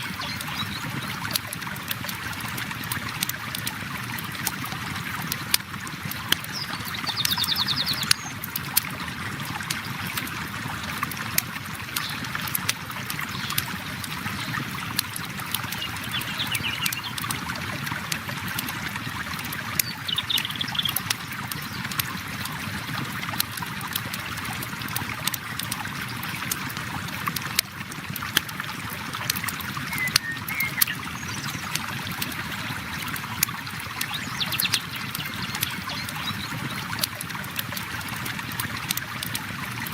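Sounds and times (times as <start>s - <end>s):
river flowing: 0.0s - 39.9s
bird calls: 6.4s - 8.4s, 15.6s - 17.2s, 19.7s - 21.1s, 29.8s - 31.7s.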